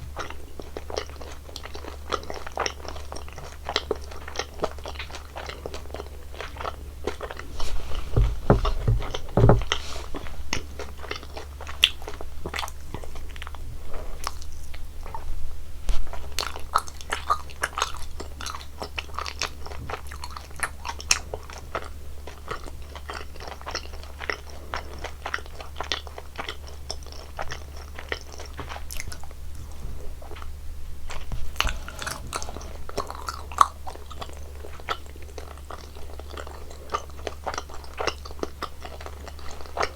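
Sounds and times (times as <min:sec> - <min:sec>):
person crunching and chewing sweets: 0:00.2 - 0:08.1, 0:31.1 - 0:39.9
low steady hum: 0:06.0 - 0:11.2.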